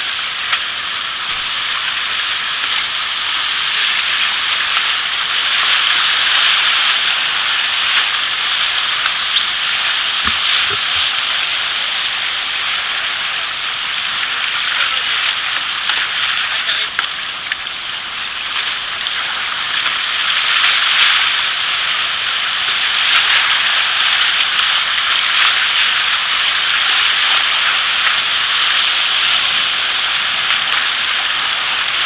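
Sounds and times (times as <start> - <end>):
river water rushing over rapids: 0.0 - 32.0.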